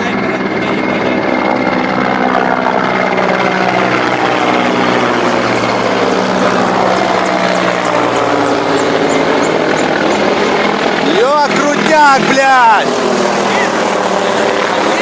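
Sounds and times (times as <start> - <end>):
helicopters flying low overhead: 0.0 - 15.0.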